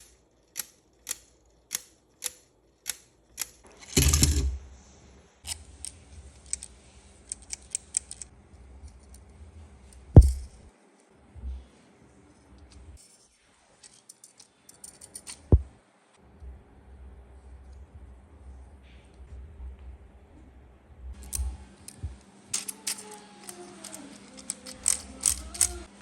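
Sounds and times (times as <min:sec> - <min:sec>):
plastic parts clicking: 0:05.5 - 0:08.3, 0:21.2 - 0:25.9.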